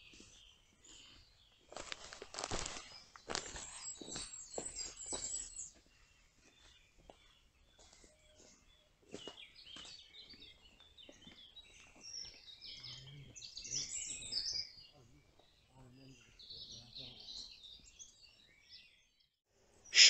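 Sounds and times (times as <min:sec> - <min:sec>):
faint songbirds singing: 0:00.0 - 0:20.0
distant voices talking: 0:12.7 - 0:17.6.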